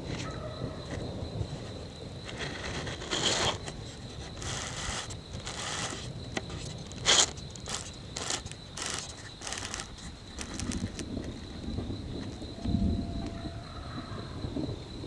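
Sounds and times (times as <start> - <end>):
rustling and scraping: 0.9 - 11.6.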